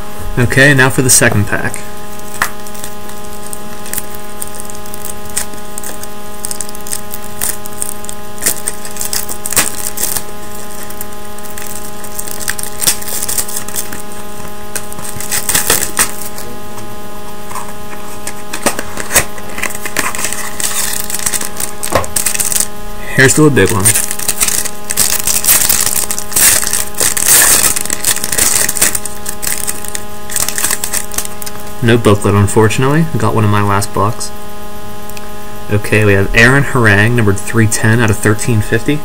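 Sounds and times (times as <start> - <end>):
steady electrical hum: 0.0 - 39.0
card pack crinkling: 1.1 - 16.5, 17.5 - 31.7.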